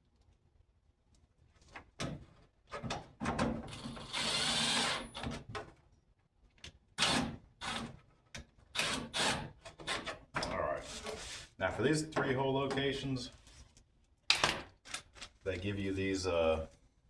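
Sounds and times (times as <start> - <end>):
cordless drill running: 3.8 - 5.2.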